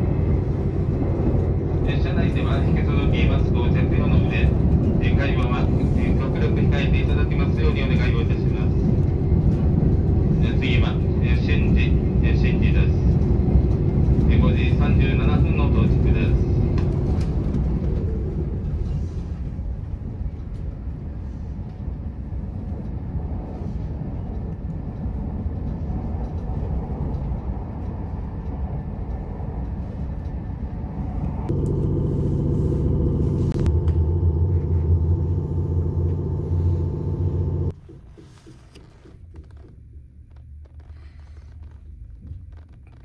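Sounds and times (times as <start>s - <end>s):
train rumbling on track: 0.0s - 39.0s
steady humming tone: 31.4s - 37.7s.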